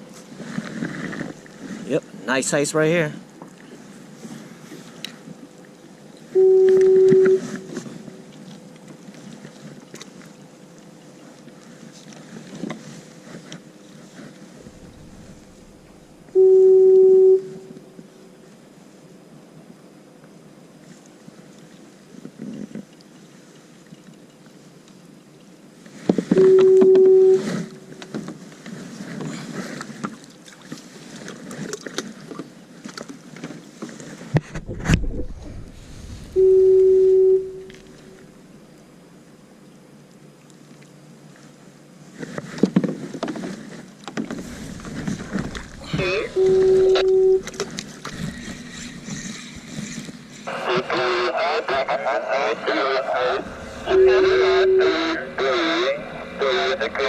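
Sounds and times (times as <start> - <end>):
low water noise: 0.0 - 57.0
foghorn blast: 6.4 - 7.8, 35.6 - 38.3, 44.4 - 48.4, 53.4 - 57.0.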